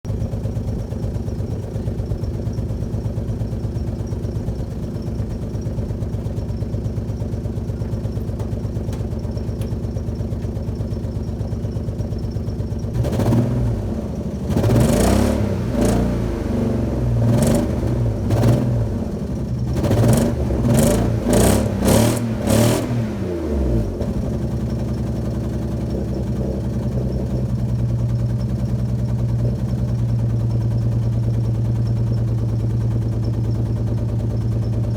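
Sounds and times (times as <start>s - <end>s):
car engine idling and revving: 0.0s - 34.9s.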